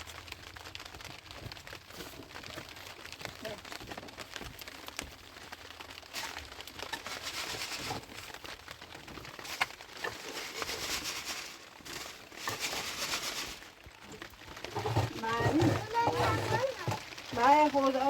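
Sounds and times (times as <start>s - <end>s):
rustling handling noise: 0.0s - 18.0s.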